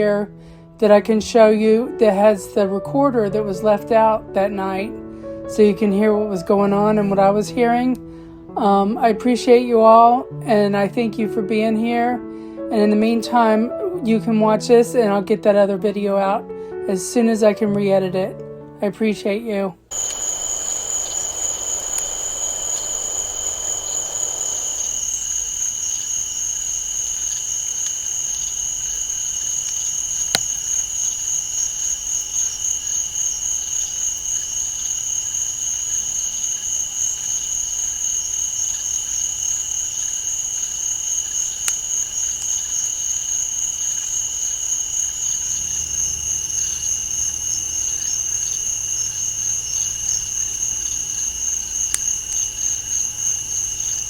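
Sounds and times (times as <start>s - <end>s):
crickets and insects trilling: 19.9s - 54.0s.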